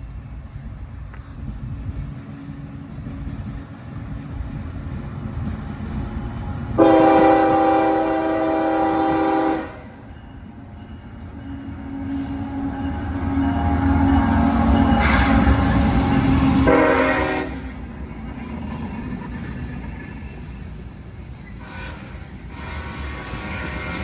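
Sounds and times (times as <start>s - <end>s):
diesel locomotive rumble: 0.0s - 24.0s
locomotive air horn blast: 6.8s - 10.0s, 16.5s - 17.6s, 21.6s - 24.0s.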